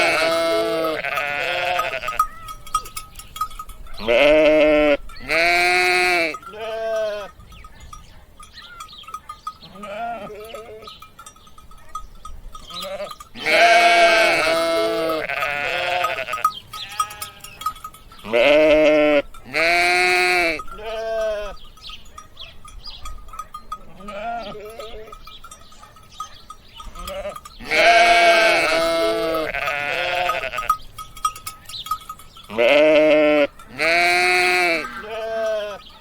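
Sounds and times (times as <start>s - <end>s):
sheep bleating: 0.0s - 2.5s, 4.0s - 7.3s, 9.6s - 11.0s, 12.7s - 17.6s, 18.2s - 21.6s, 23.8s - 25.2s, 26.9s - 30.8s, 32.5s - 35.9s.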